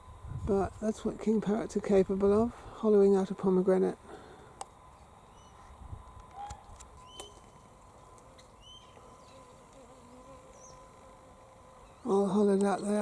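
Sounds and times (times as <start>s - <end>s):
faint bird chirps: 4.9s - 7.6s, 8.4s - 9.5s.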